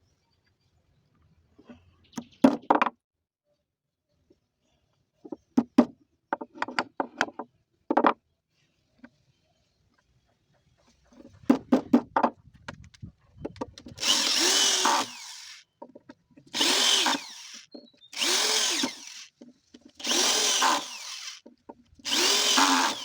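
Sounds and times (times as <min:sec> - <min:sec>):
electric drill on wood: 0:14.0 - 0:15.6, 0:16.5 - 0:19.3, 0:20.0 - 0:21.4, 0:22.0 - 0:23.0.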